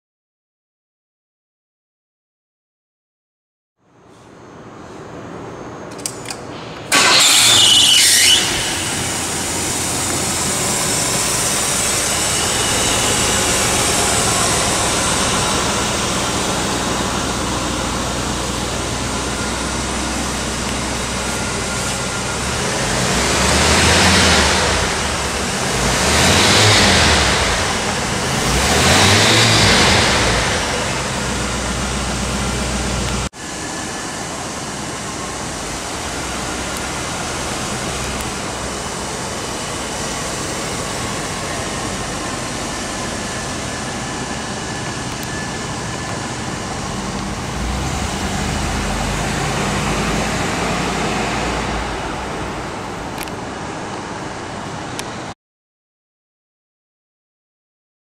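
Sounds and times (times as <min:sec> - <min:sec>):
car engine starting and idling: 0:05.9 - 0:54.9
engine revving: 0:06.9 - 0:33.3, 0:39.6 - 0:52.5.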